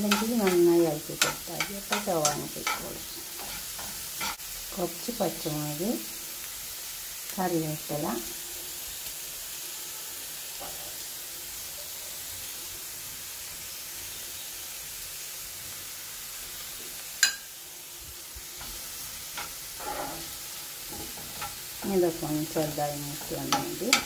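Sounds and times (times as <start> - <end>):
spatula scraping a pan: 0.0 - 4.5, 18.5 - 24.0
vegetables sizzling in hot oil: 0.0 - 24.0.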